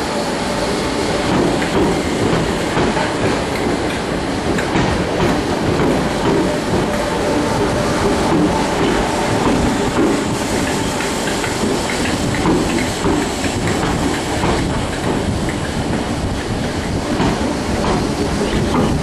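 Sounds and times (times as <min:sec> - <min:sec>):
electric train rumbling: 0:00.0 - 0:19.0
train wheels clickety-clack: 0:01.0 - 0:19.0.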